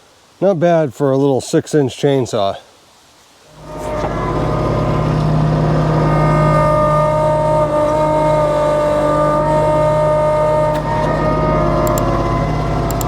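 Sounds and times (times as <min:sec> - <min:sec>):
diesel tractor engine humming: 0:03.5 - 0:13.0
steady engine whine: 0:03.5 - 0:13.0.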